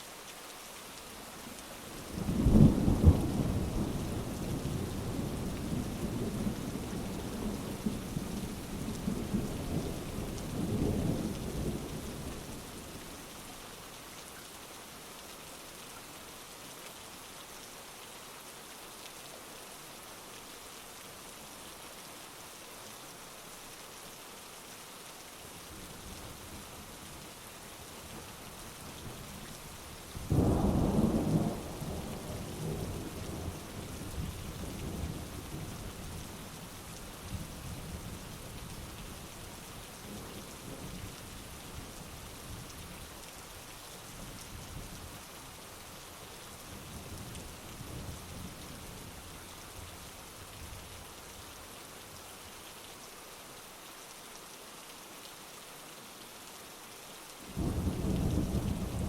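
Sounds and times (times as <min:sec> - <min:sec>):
heavy rain: 0:00.0 - 0:59.0
rumble of thunder: 0:57.6 - 0:59.0.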